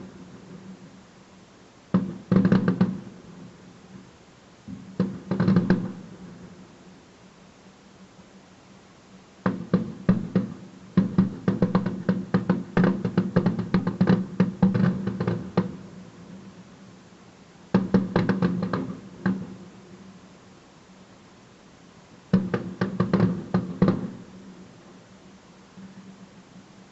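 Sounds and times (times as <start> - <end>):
fireworks bangs: 1.9 - 4.0, 4.7 - 6.6, 9.4 - 16.5, 17.7 - 19.7, 22.3 - 24.4.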